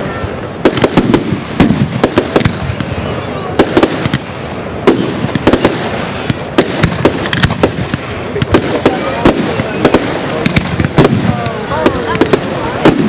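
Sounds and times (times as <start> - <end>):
firework shells bursting: 3.6 - 13.0.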